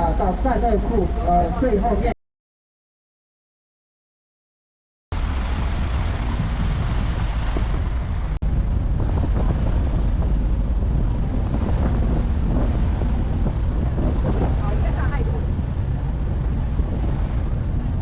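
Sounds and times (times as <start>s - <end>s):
wind buffeting microphone: 5.1s - 18.0s.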